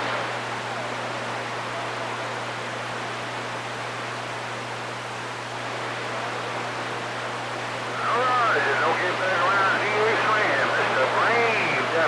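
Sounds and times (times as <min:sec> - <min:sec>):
radio static hiss: 0:07.8 - 0:12.0
low hum: 0:07.9 - 0:12.0.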